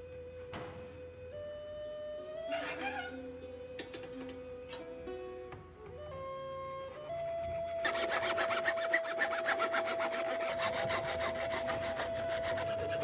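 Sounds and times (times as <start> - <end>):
abrasive scraping of blade: 7.6 - 13.0.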